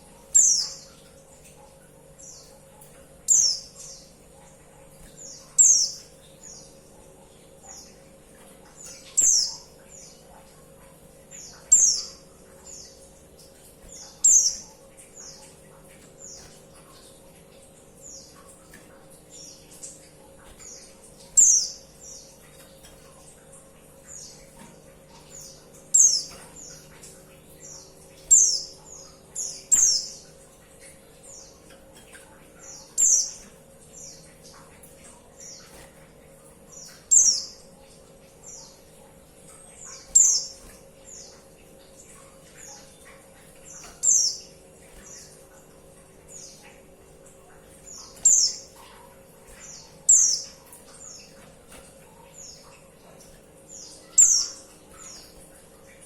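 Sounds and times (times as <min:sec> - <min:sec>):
faint steady hum: 0:00.0 - 0:56.0
bird chirping: 0:00.3 - 0:01.0, 0:03.2 - 0:04.1, 0:05.0 - 0:06.8, 0:08.7 - 0:10.2, 0:11.3 - 0:13.0, 0:13.8 - 0:15.6, 0:19.3 - 0:22.4, 0:25.1 - 0:26.9, 0:27.5 - 0:31.6, 0:32.6 - 0:34.6, 0:36.7 - 0:37.6, 0:39.5 - 0:41.4, 0:42.2 - 0:45.4, 0:47.8 - 0:51.4, 0:53.6 - 0:55.5.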